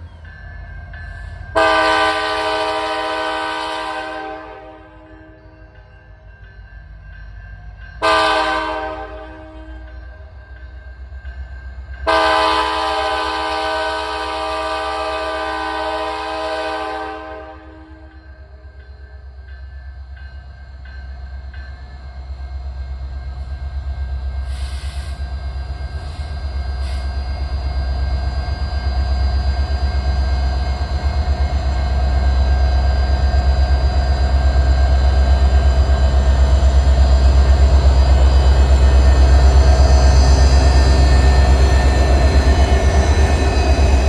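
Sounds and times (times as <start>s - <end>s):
diesel locomotive engine rumble: 0.0s - 44.0s.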